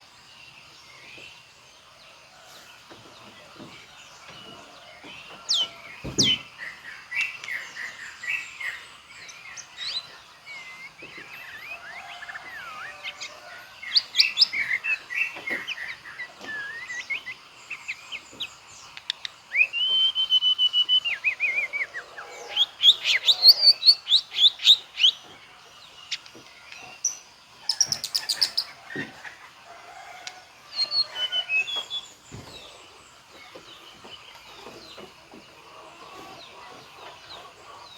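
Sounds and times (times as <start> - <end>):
bird singing whistles and trills: 13.9 - 18.0, 19.0 - 25.3, 30.7 - 32.2.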